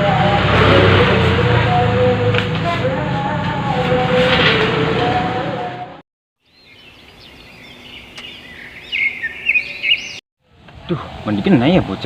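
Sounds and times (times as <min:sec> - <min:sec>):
birds chirping: 0:06.4 - 0:10.2.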